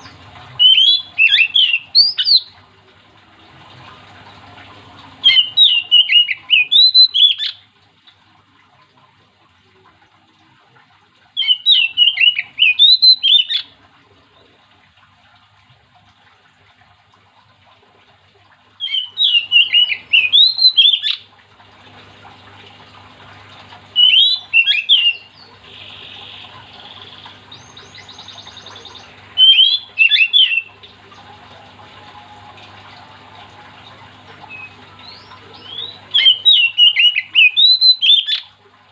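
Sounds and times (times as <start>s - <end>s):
magpie-robin singing whistled notes: 0.6s - 2.5s, 5.2s - 7.6s, 11.4s - 13.6s, 18.8s - 21.2s, 24.0s - 25.3s, 27.5s - 30.7s, 34.5s - 38.5s.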